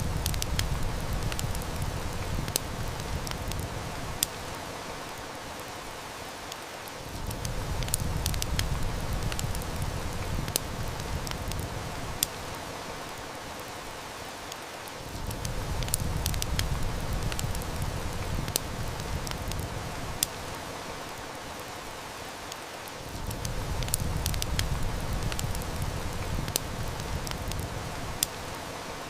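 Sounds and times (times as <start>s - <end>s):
distant thunder rumble: 0.0s - 4.2s, 7.2s - 12.2s, 15.2s - 20.2s
heavy rain hissing: 0.0s - 29.0s
wood fire crackling: 0.0s - 29.0s.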